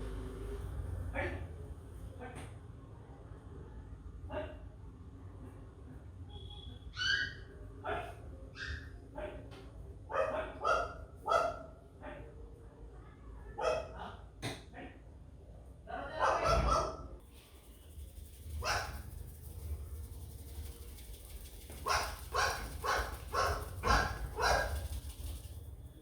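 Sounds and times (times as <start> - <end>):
dog barking: 10.1 - 11.8, 13.6 - 14.1, 16.2 - 17.1, 18.6 - 19.1, 21.8 - 25.2.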